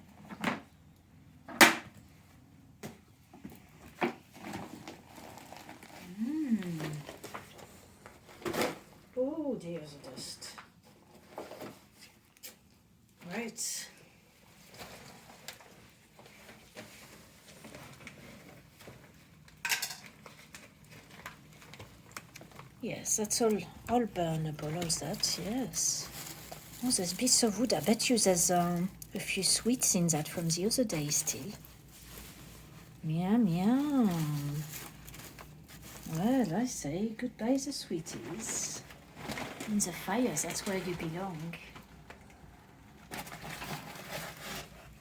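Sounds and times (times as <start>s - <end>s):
objects being moved about: 2.9s - 9.0s, 9.8s - 12.7s, 14.5s - 36.7s, 37.9s - 45.0s
clattering rustle: 14.5s - 22.8s, 38.1s - 42.0s.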